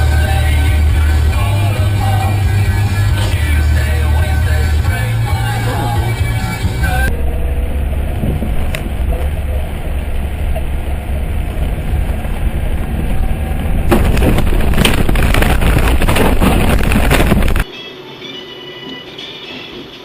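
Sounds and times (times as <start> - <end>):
road and engine rumble: 0.0 - 17.7
harsh rushing noise with crackles: 6.4 - 17.7.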